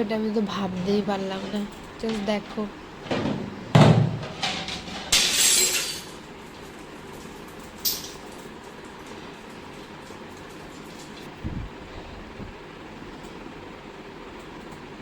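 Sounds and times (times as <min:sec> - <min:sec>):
ringing glass smash: 0:05.1 - 0:06.2.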